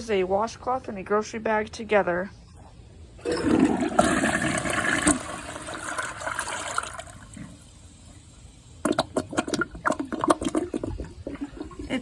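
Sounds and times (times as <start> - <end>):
toilet flushing: 3.2 - 12.0.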